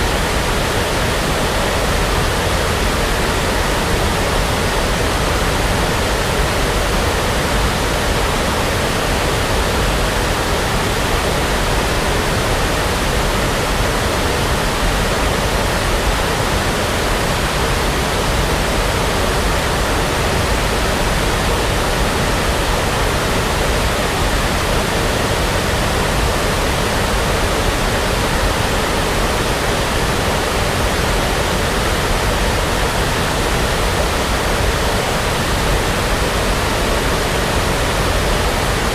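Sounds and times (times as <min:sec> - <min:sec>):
brown noise hiss: 0:00.0 - 0:38.9.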